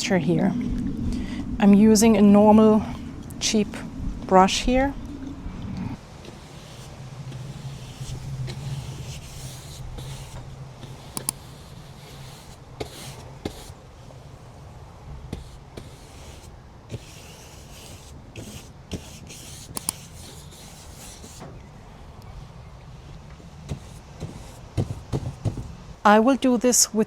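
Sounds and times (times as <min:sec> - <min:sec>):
paintbrush sweeping across paper: 0:06.0 - 0:13.8, 0:15.3 - 0:21.4, 0:23.7 - 0:25.6
sharp clicks: 0:11.1 - 0:11.5, 0:19.7 - 0:20.1.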